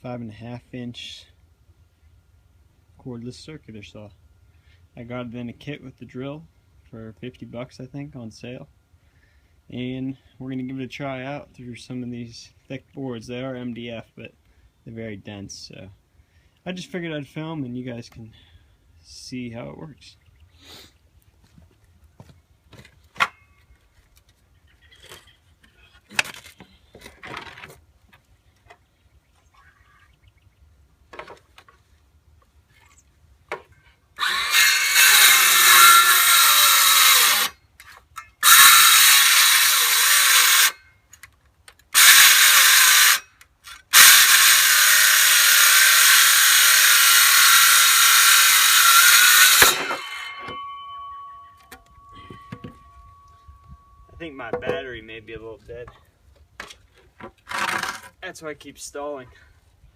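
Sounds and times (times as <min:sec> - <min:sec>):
circular saw cutting wood: 0:34.2 - 0:37.6, 0:38.3 - 0:40.8, 0:41.9 - 0:51.3.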